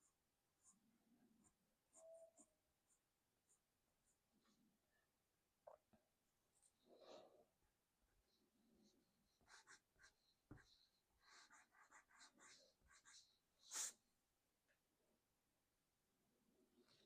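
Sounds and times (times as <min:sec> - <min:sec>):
pencil scratching on paper: 0:09.3 - 0:14.0.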